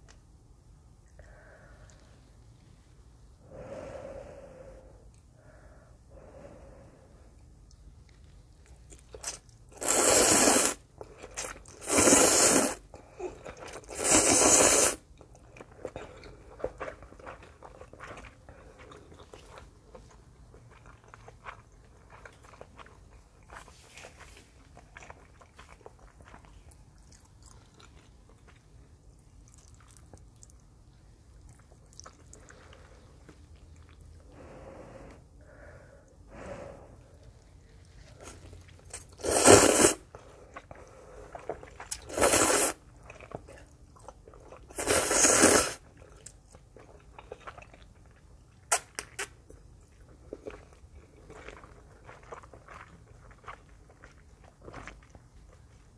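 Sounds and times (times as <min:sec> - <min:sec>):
quiet wet chewing: 0:07.3 - 0:09.8, 0:15.0 - 0:39.4, 0:40.0 - 0:45.0, 0:45.7 - 0:55.9
loud slurping of noodles: 0:09.8 - 0:10.8, 0:11.4 - 0:12.8, 0:13.8 - 0:15.0, 0:39.2 - 0:40.1, 0:42.0 - 0:42.8, 0:44.7 - 0:45.8.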